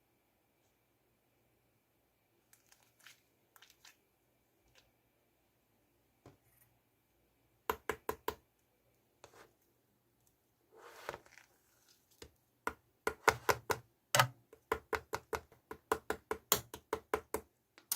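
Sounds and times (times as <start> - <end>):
soft rustling squish: 2.4 - 5.0, 8.9 - 12.5.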